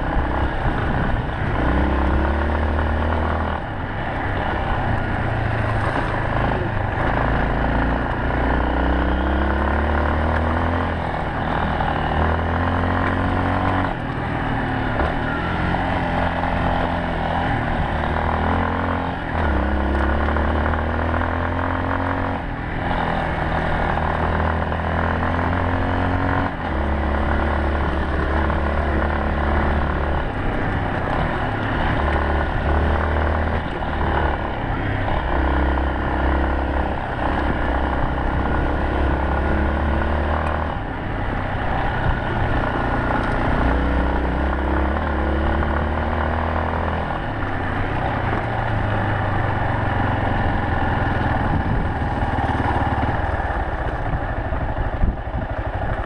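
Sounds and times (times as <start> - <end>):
motorcycle engine shifting gears: 0.0 - 56.0.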